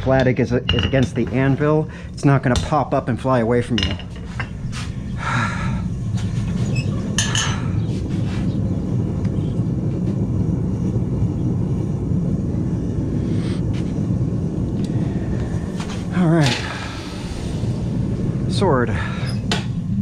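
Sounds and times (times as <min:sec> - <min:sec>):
forge roaring: 0:00.0 - 0:20.0.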